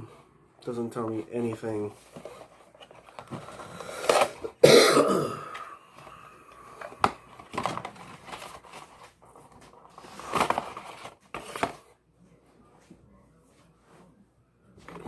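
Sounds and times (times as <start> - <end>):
packaging crinkling: 6.6 - 11.8.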